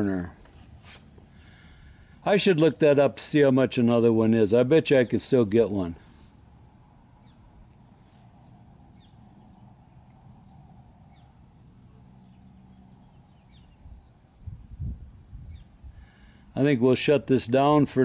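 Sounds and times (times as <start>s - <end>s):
low steady background hum: 0.0s - 18.0s
faint bird chirps: 6.5s - 16.4s.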